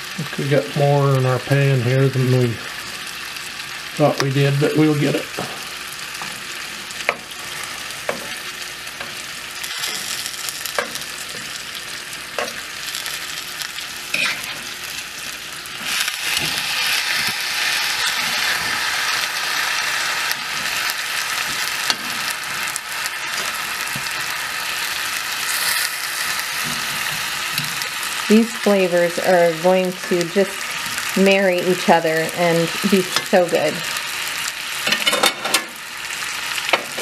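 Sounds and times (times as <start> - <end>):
meat sizzling in a skillet: 0.0 - 37.0
utensils scraping a pan: 14.1 - 14.7.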